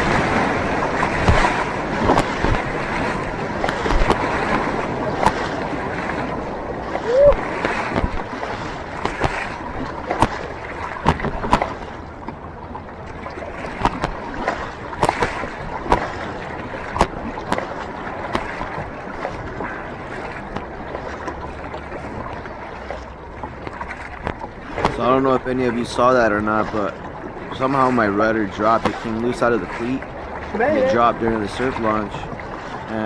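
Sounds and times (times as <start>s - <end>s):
water rushing and splashing: 0.0s - 33.0s
sharp knocks and slaps: 1.2s - 2.7s, 3.6s - 5.5s.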